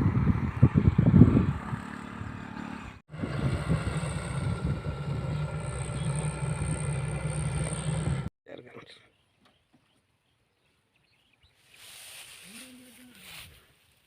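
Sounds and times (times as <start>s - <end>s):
combine harvester running: 0.0s - 8.3s
high machine whine: 3.2s - 8.3s.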